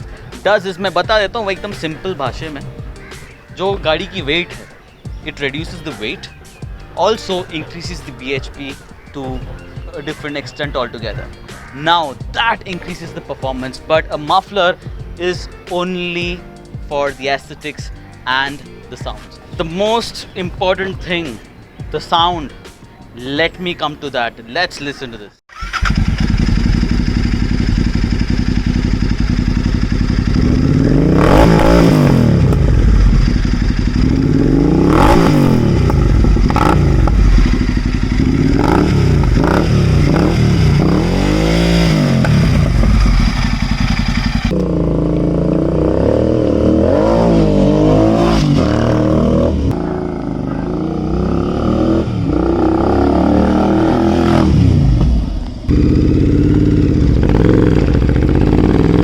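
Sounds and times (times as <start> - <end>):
motorcycle engine revving: 25.5 - 59.0.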